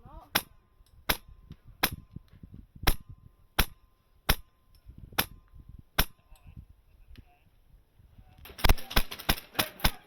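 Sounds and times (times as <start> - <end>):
airsoft rifle shots: 2.9 - 4.5, 8.5 - 10.0.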